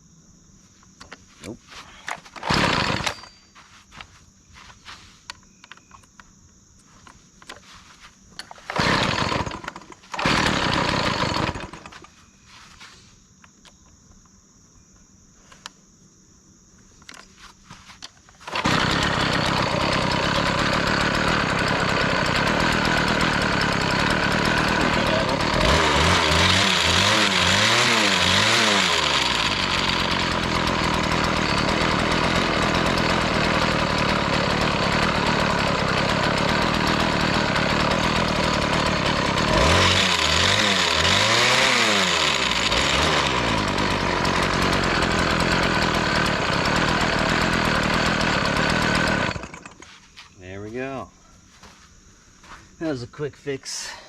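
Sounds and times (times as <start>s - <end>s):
small gasoline engine running: 2.3s - 3.8s, 7.6s - 12.1s, 18.4s - 50.0s.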